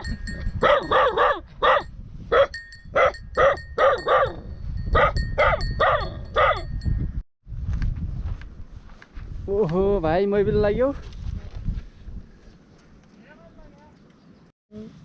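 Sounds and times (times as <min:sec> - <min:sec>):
dog barking: 0:00.6 - 0:06.7.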